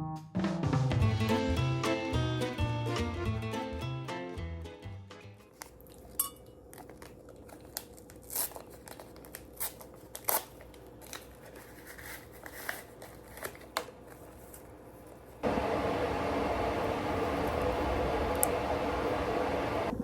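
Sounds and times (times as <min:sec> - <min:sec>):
paper crinkling: 0:05.4 - 0:15.4
faint steady hum: 0:05.6 - 0:20.0.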